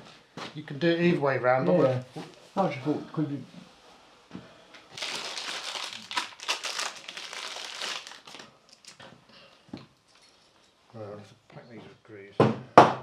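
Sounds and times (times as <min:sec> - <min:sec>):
packaging crinkling: 0:04.9 - 0:09.0.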